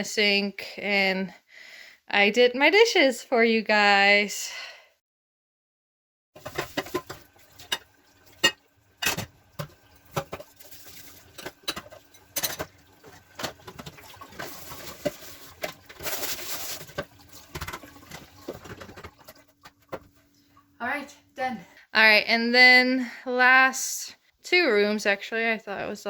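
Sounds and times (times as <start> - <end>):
dishes clinking: 6.4 - 10.6, 11.3 - 15.8
running water: 6.4 - 20.6.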